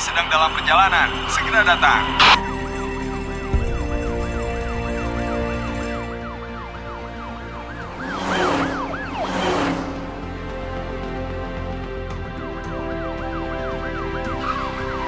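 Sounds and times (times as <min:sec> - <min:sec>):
fire engine siren yelping: 0:00.0 - 0:11.4, 0:12.4 - 0:15.0
background music: 0:00.0 - 0:15.0
loud whooshes: 0:07.6 - 0:10.4.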